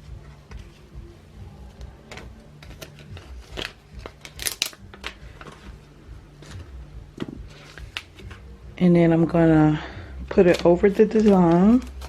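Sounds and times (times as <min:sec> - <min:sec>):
paper backing crinkling as peeled: 0:02.6 - 0:05.8, 0:10.5 - 0:12.0.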